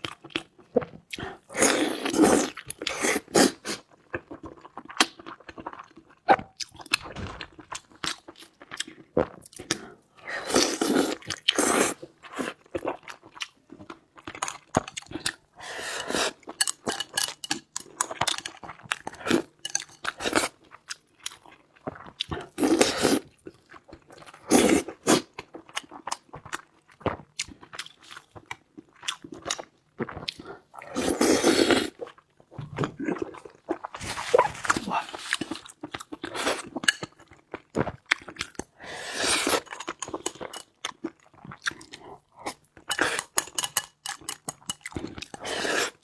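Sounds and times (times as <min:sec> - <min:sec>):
chewing and crunchy biting: 0:16.0 - 0:46.0.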